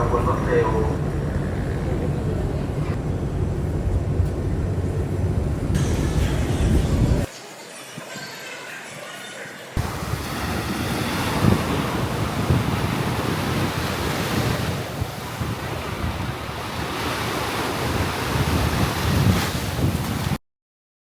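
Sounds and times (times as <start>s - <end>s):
wind buffeting microphone: 0.0s - 7.3s, 9.8s - 20.4s
loud rushing noise: 2.9s - 15.7s.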